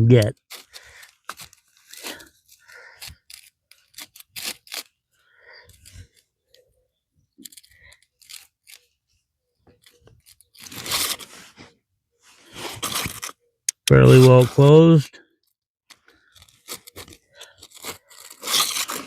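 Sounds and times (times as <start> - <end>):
crinkly handling noise: 0.2 - 13.5, 15.4 - 19.0.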